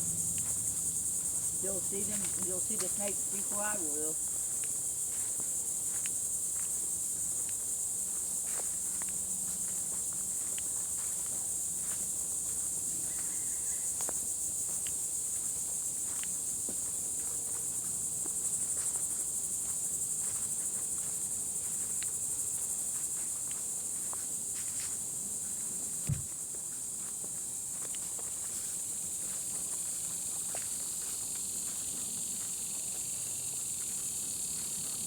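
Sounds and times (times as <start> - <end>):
insects chirping: 0.0 - 35.0
footsteps on trail: 0.1 - 35.0
low thump: 26.0 - 26.3.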